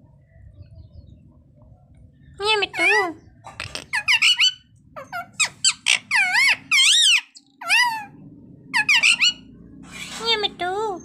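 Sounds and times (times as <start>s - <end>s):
parakeet squawking calls: 2.7s - 9.6s.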